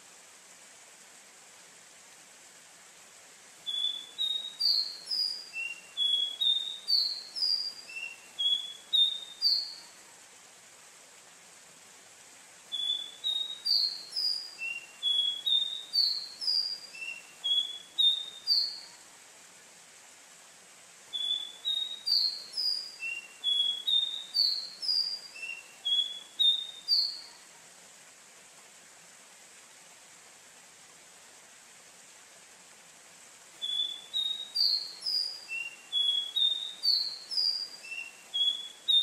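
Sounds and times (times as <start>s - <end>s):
bird singing whistled notes: 3.6s - 9.9s, 12.7s - 19.0s, 21.1s - 27.4s, 33.6s - 39.0s.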